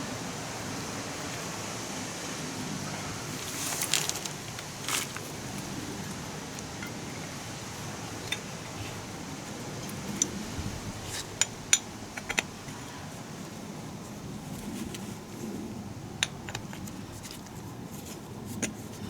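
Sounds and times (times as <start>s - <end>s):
steady hiss: 0.0s - 17.3s.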